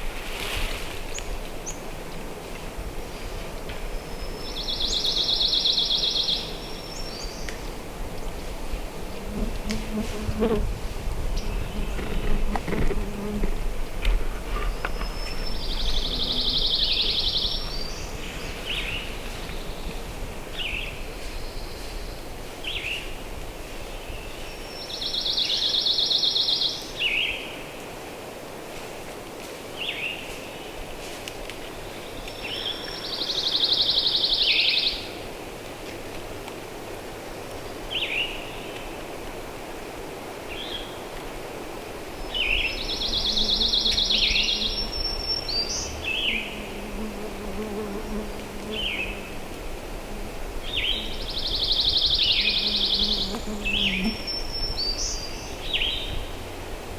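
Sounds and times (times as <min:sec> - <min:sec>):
songbird dry trill: 0:42.3 - 0:47.2
birds chirping: 0:42.3 - 0:49.4, 0:50.6 - 0:56.2.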